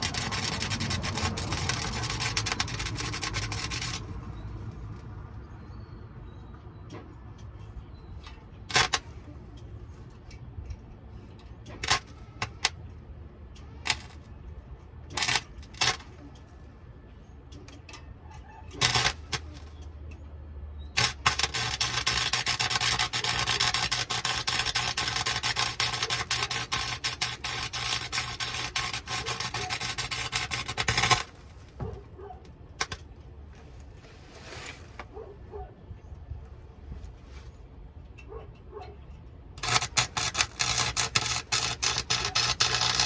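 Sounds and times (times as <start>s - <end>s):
welding arc crackling: 0.0s - 5.0s, 8.7s - 9.1s, 11.8s - 12.7s, 13.8s - 14.2s, 15.1s - 16.2s, 18.7s - 19.8s, 21.0s - 31.4s, 32.8s - 33.0s, 39.6s - 43.0s
sharp clicks and knocks: 21.0s - 32.0s, 32.8s - 33.3s, 38.0s - 43.0s.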